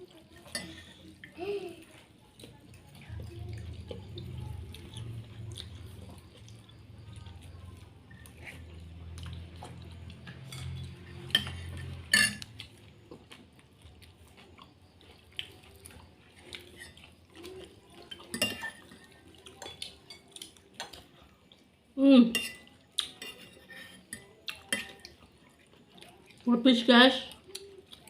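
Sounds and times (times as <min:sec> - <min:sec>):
cutlery clinking against bowl: 0:00.4 - 0:01.0, 0:09.6 - 0:12.8, 0:16.4 - 0:21.1, 0:22.3 - 0:25.2.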